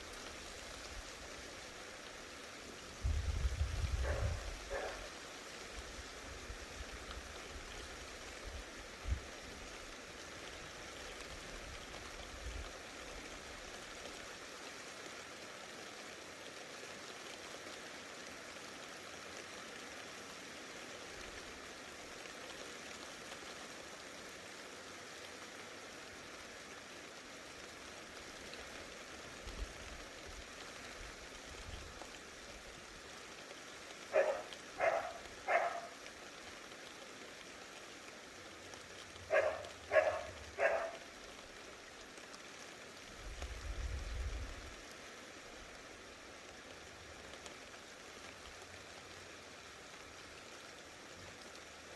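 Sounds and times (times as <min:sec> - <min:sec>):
heavy rain hissing: 0:00.0 - 0:51.9.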